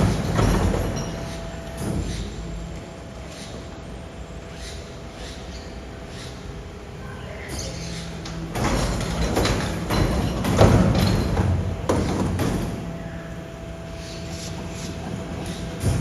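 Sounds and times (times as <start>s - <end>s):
heavy thuds and clanks: 0.0s - 2.4s, 8.3s - 13.0s, 14.6s - 16.0s
garbage truck humming: 0.0s - 16.0s.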